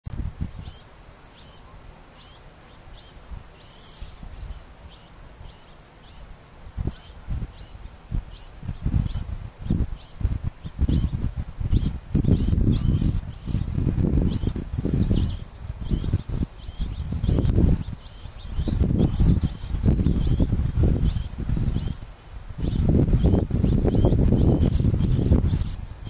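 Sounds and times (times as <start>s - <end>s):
fledgling bird begging calls: 0.6s - 9.3s, 9.9s - 13.7s, 14.3s - 22.0s.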